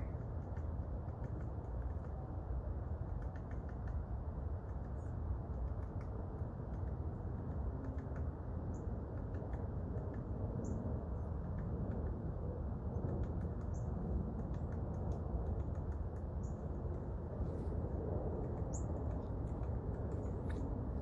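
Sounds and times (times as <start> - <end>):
woodpecker pecking at wood: 0.0 - 10.4, 11.1 - 17.4, 18.3 - 21.0
low wind rumble: 0.0 - 21.0.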